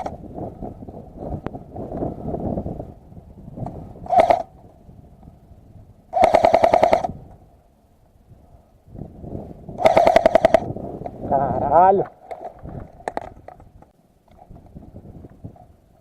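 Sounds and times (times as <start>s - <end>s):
airsoft gun firing full-auto bursts: 4.1s - 4.5s, 6.1s - 7.1s, 9.8s - 10.7s.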